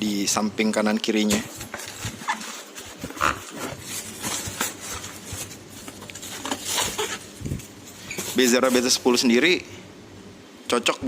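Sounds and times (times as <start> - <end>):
foam and cardboard scraping: 1.6 - 9.2.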